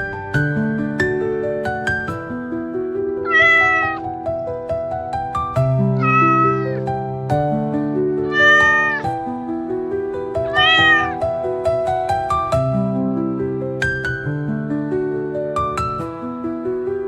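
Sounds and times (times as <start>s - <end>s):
cat meowing: 3.2s - 4.1s, 5.9s - 6.9s, 8.2s - 9.1s, 10.4s - 11.2s.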